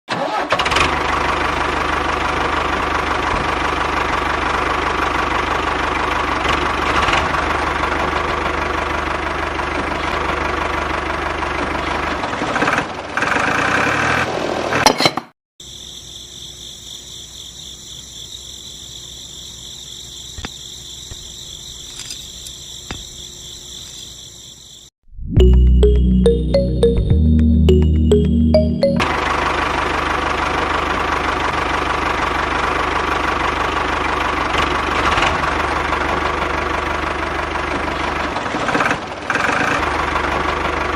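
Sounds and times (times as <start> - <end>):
small engine running rough: 0.2 - 14.9, 29.1 - 40.9.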